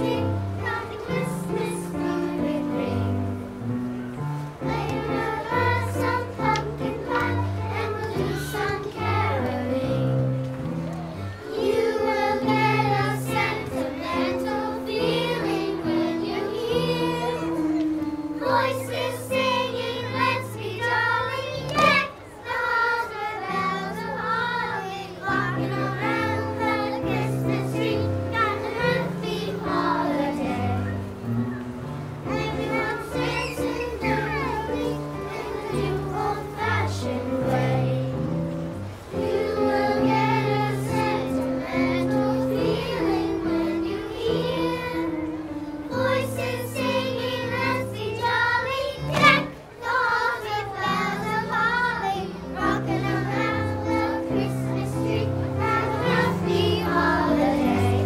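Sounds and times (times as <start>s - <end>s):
choir singing: 0.0s - 3.8s, 4.6s - 10.5s, 11.4s - 31.3s, 32.2s - 38.4s, 39.1s - 58.0s
instrumental accompaniment: 0.0s - 58.0s.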